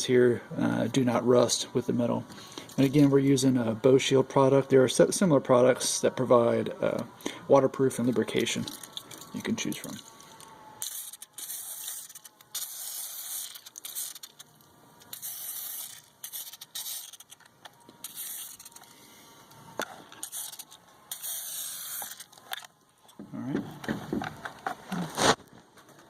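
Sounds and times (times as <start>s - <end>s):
aerosol can spraying: 10.8s - 14.5s, 15.1s - 17.3s, 18.0s - 18.8s, 20.2s - 22.3s.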